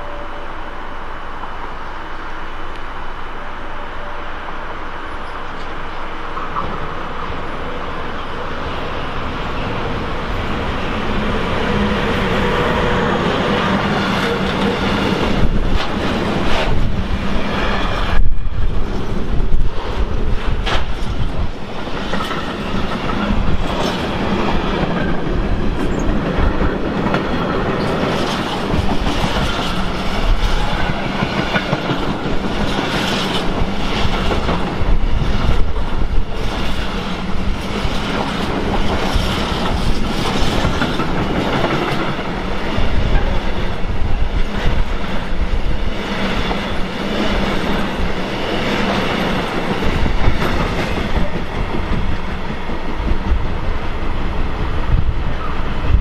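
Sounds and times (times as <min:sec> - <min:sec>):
train rumble: 0:00.0 - 0:56.0
train wheels clattering: 0:20.3 - 0:43.8, 0:44.4 - 0:53.6.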